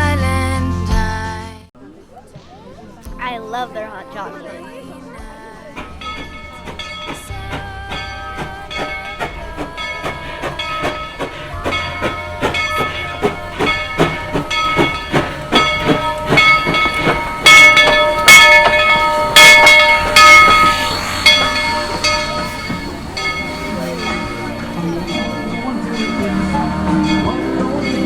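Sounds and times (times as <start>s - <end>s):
steam locomotive chuffing: 5.2s - 28.0s
steam hissing bursts: 5.7s - 27.2s.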